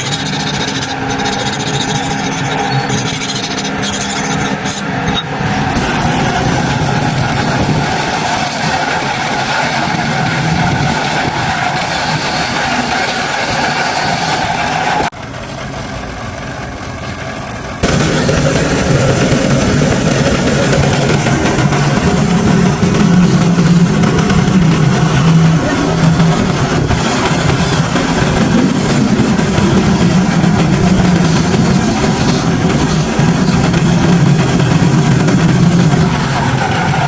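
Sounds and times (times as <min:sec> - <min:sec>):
power tool grinding steel blade: 0:00.0 - 0:15.1.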